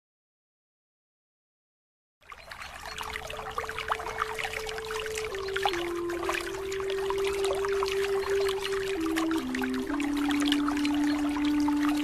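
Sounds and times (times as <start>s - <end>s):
held low note: 2.9s - 12.0s.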